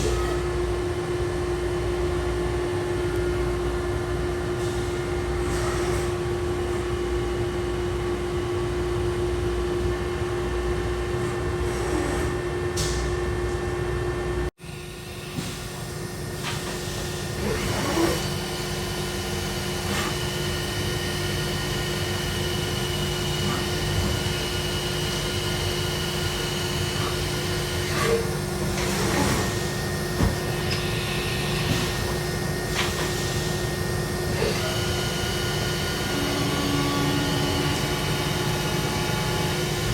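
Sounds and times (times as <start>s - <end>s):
machinery humming: 0.0s - 39.9s
machine whining tones: 14.7s - 39.9s.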